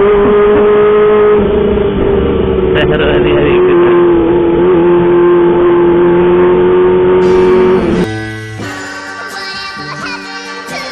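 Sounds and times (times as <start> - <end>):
motorcycle engine at high revs: 0.0 - 8.1
music: 7.2 - 10.9.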